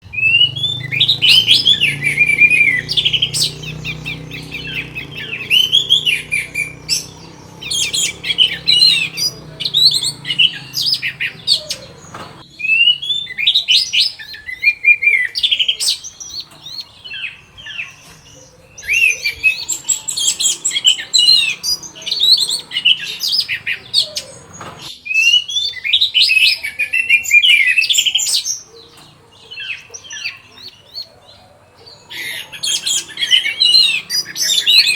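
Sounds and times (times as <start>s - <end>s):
thrush singing whistled phrases: 0.0s - 16.0s.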